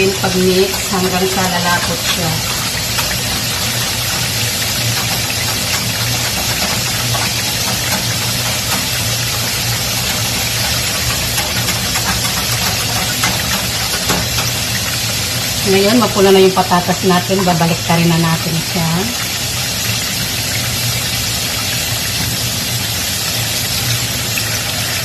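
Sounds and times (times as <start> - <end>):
potatoes sizzling in oil: 0.0 - 25.0
whisk stirring sauce: 0.1 - 16.1.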